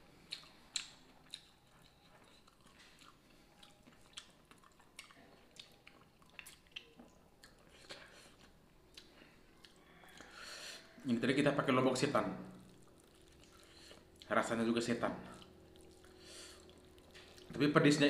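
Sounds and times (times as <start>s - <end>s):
lip smacks: 0.2s - 10.4s
chewing with wet mouth clicks: 0.2s - 11.0s, 12.5s - 14.6s, 15.2s - 17.7s.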